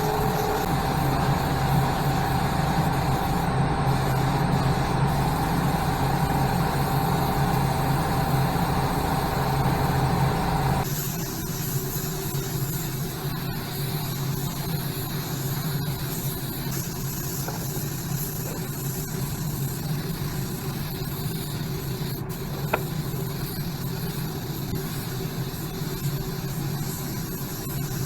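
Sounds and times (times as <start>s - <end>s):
low hum: 0.0s - 10.8s
spray hissing: 0.0s - 13.0s.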